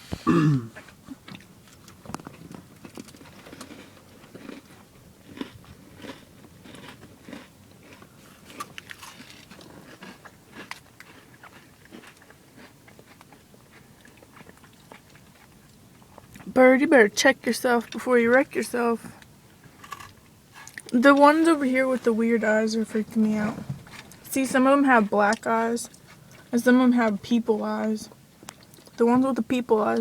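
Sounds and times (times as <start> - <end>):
crunchy snacks being chewed: 1.1 - 16.5.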